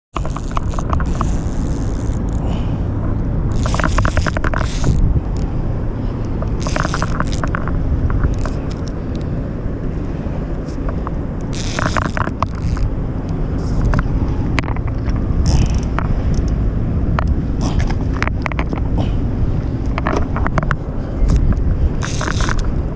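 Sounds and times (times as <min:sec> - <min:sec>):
short scrapes and clicks: 0:00.1 - 0:02.5, 0:03.5 - 0:05.5, 0:06.3 - 0:09.3, 0:10.6 - 0:12.9, 0:19.9 - 0:22.7
low outdoor rumble: 0:00.1 - 0:22.9.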